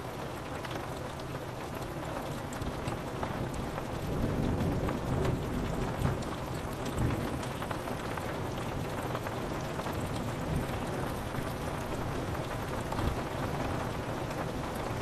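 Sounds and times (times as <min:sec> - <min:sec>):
rain pattering on window glass: 0:00.0 - 0:15.0.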